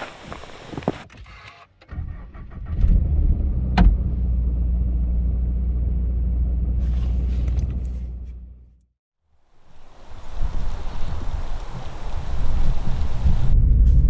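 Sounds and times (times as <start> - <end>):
car engine starting and running: 0.0 - 8.8.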